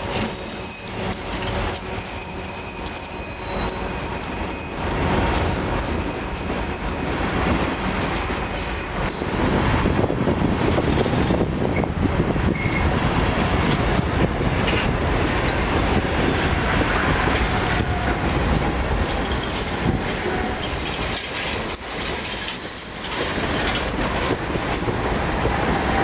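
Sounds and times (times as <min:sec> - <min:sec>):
freight train wheels clacking: 0:00.0 - 0:26.0
wheel squeals: 0:00.2 - 0:06.2, 0:11.7 - 0:12.9.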